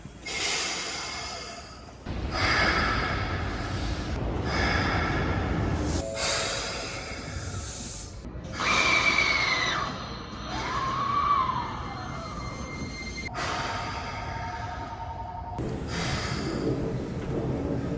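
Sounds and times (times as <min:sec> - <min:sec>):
train air brakes hissing: 0:00.2 - 0:01.5.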